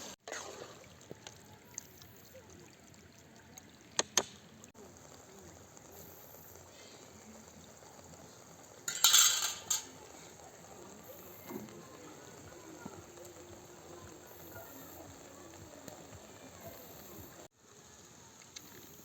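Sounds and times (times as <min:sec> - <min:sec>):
liquid splashing: 0:00.0 - 0:17.5
utensil clinks: 0:08.9 - 0:10.0.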